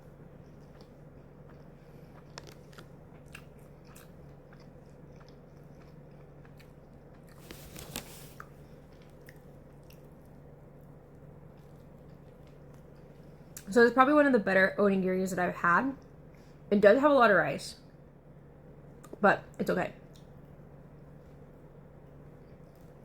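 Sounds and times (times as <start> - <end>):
person chewing food: 0.0 - 13.7, 22.0 - 23.0.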